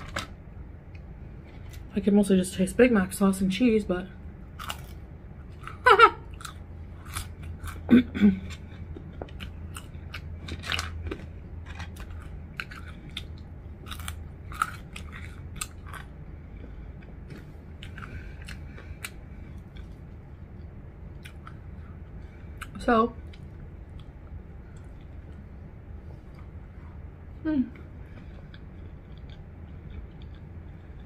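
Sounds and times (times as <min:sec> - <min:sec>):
chewing and biting food: 0:04.5 - 0:25.4, 0:28.2 - 0:31.0.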